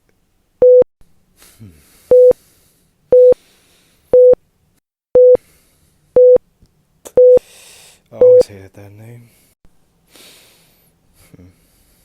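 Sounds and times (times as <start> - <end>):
heart monitor beeping: 2.1 - 2.3, 3.1 - 3.4, 4.2 - 4.4, 5.2 - 5.4, 6.2 - 6.4, 7.2 - 7.4, 8.2 - 8.4.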